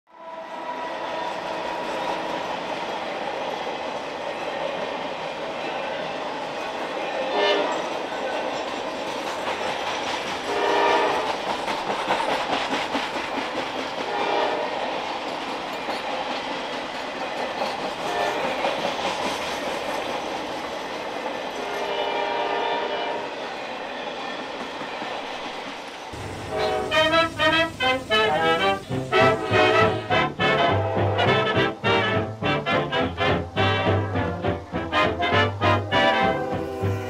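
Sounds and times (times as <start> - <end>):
train horn blasts: 0.1 - 1.2, 7.3 - 7.9, 10.5 - 11.3, 14.1 - 14.8, 18.0 - 18.6, 21.6 - 23.3, 26.4 - 37.0
freight train rumbling: 0.1 - 37.0
wheels clicking on rails: 7.6 - 21.9.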